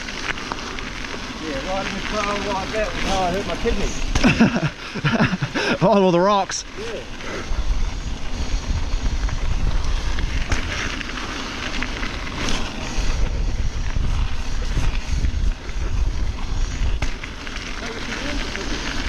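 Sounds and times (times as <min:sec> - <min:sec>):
bike tyre noise: 0:00.0 - 0:19.0
bike frame rattle: 0:00.2 - 0:05.8
wind buffeting microphone: 0:06.6 - 0:19.0.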